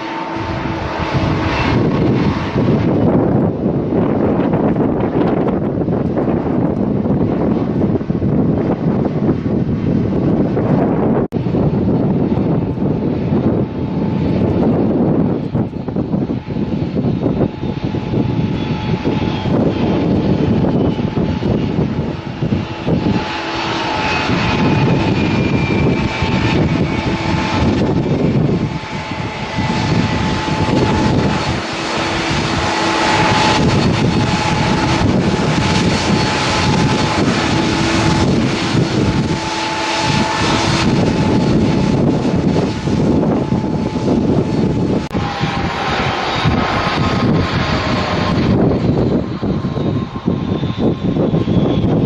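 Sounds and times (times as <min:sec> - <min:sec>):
jet engines roaring: 0:00.0 - 0:52.0
whine gliding down in pitch: 0:00.0 - 0:52.0.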